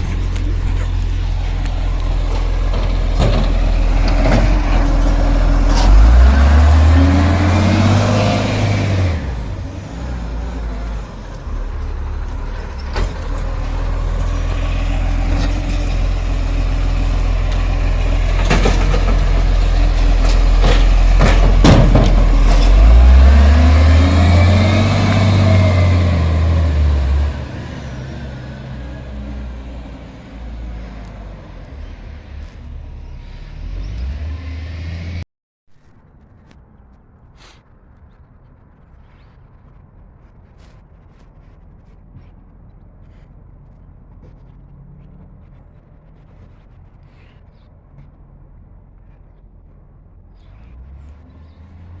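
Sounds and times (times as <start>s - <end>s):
garbage truck diesel engine revving: 0.0s - 35.2s.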